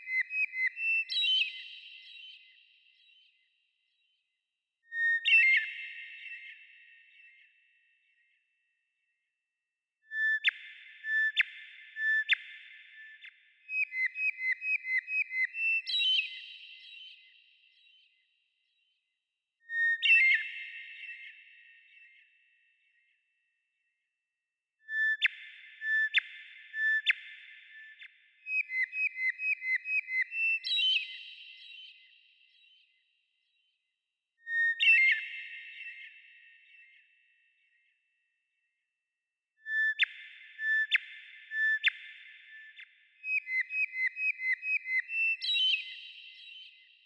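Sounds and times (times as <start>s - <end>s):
bird whistled song: 0.0s - 3.4s, 4.9s - 7.6s, 10.1s - 18.2s, 19.6s - 23.1s, 24.8s - 33.0s, 34.4s - 37.8s, 39.6s - 47.0s
songbird singing: 28.0s - 31.7s, 43.3s - 46.4s.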